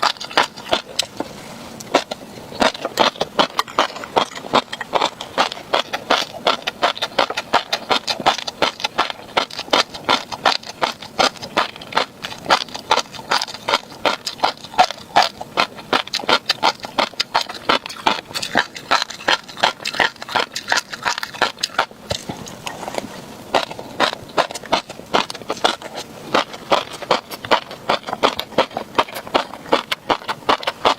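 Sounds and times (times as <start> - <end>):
chewing crunchy fish roe: 0.0 - 30.9.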